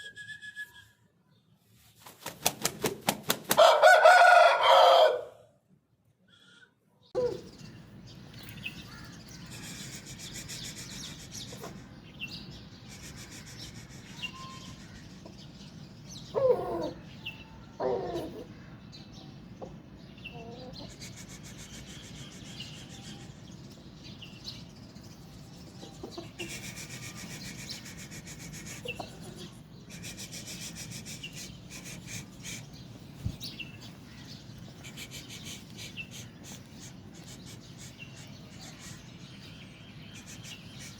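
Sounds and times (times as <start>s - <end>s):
chickens calling: 7.2s - 12.0s, 12.9s - 18.6s, 19.3s - 40.9s
high bird chirps: 7.3s - 15.6s.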